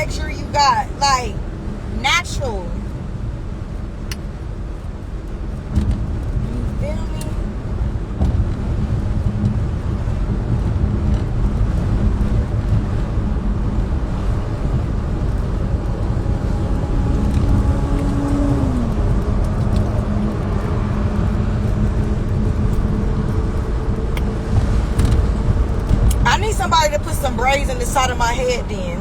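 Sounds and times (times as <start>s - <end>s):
road and engine rumble: 0.0s - 29.0s.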